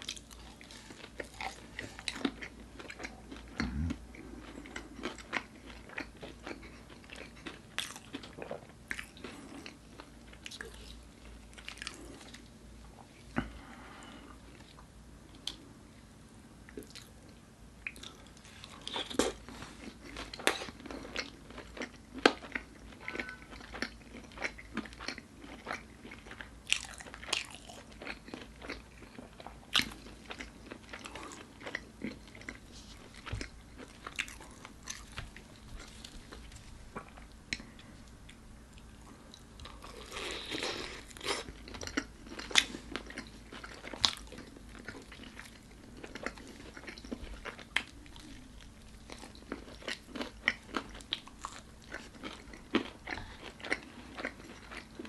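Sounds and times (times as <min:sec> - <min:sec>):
crunchy bites and chewing: 0:18.0 - 0:37.7, 0:39.6 - 0:55.0.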